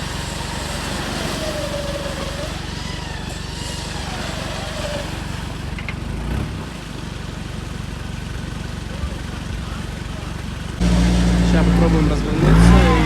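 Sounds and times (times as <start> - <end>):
engine running at low revs: 5.2 - 13.0.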